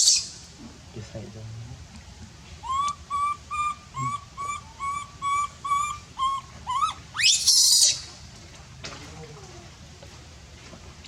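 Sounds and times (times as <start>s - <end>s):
baby monkey crying and screaming: 0.0s - 0.3s, 2.6s - 8.1s.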